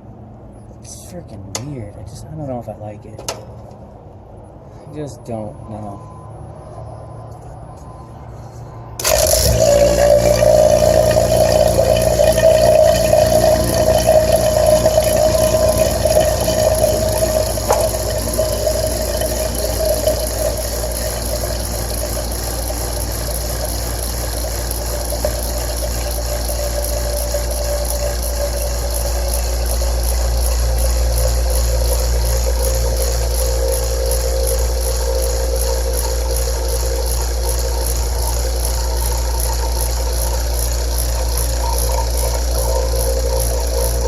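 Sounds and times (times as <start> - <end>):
vacuum pump motor humming: 9.0 - 44.0.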